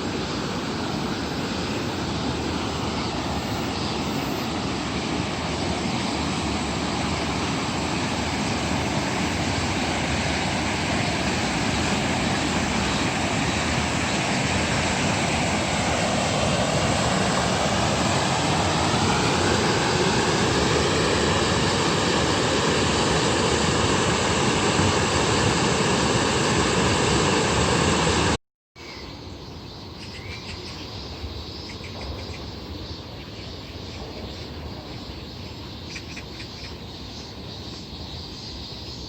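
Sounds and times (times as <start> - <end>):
low-flying aircraft passing overhead: 0.0 - 28.4
insects chirping: 0.0 - 39.0.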